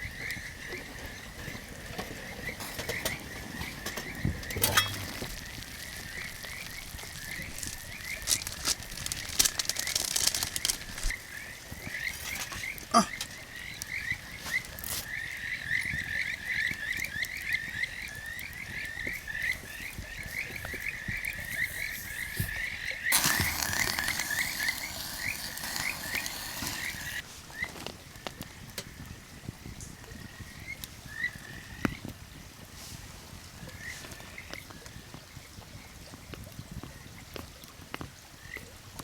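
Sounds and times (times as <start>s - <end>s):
frogs chirping: 0.0s - 27.2s.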